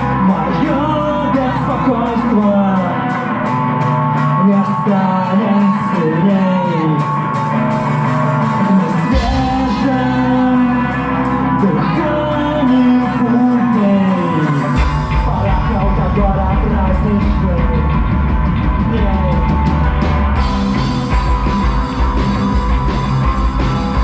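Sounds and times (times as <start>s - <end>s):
person singing: 0.0s - 7.4s, 8.2s - 19.8s
deep bass part: 0.0s - 24.0s
rock band playing live: 0.0s - 24.0s.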